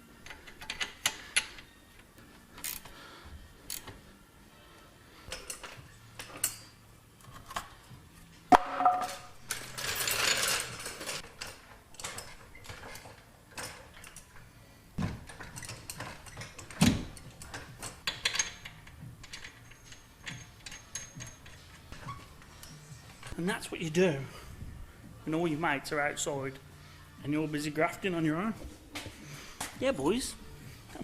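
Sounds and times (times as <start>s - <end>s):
metal parts clinking and rattling: 8.9s - 14.4s, 15.2s - 23.4s.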